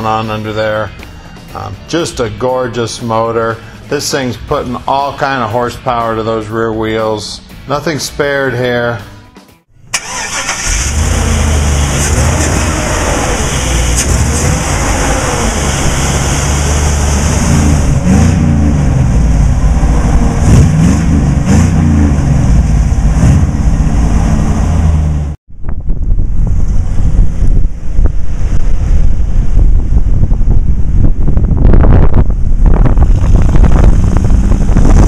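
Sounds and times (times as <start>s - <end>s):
engine revving: 9.9s - 25.4s, 32.0s - 35.0s
wind noise on microphone: 10.0s - 35.0s.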